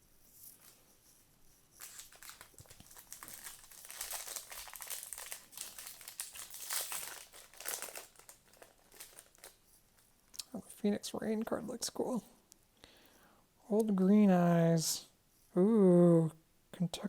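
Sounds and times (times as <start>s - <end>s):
foil wrapper crinkling: 1.8s - 9.6s.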